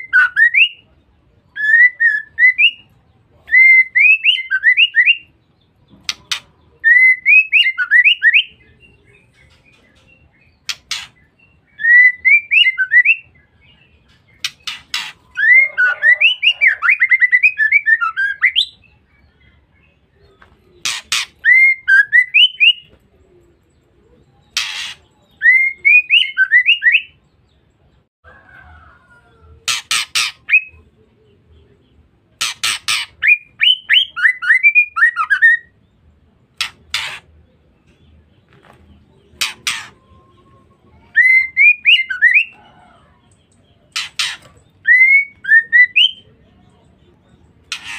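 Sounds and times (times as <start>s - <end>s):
bird chirping phrases: 0.0s - 47.9s
harsh rasping bird notes: 10.6s - 12.9s, 14.1s - 18.4s, 20.8s - 22.8s, 24.5s - 26.2s, 29.6s - 30.8s, 32.4s - 35.8s, 36.5s - 37.5s, 39.3s - 42.7s, 43.9s - 46.2s, 47.6s - 47.9s.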